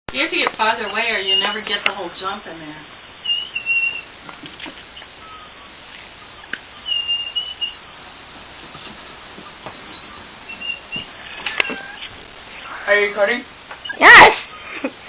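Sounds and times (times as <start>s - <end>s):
shrill whistle blasts: 0.8s - 4.1s, 5.0s - 8.5s, 9.4s - 12.9s, 13.8s - 15.0s.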